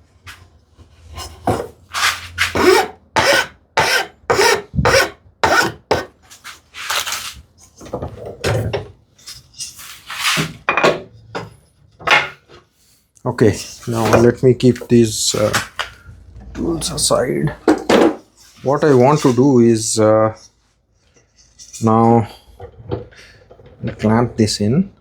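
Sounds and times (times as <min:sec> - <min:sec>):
hand tool scraping wood: 0:01.0 - 0:07.4, 0:13.4 - 0:15.9.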